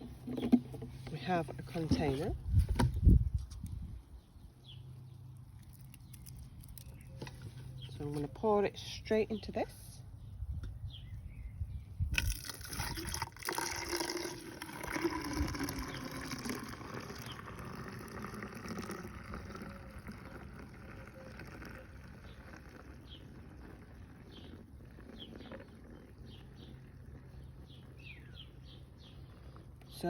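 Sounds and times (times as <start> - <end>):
liquid pouring and trickling: 5.0 - 7.6, 12.1 - 28.6.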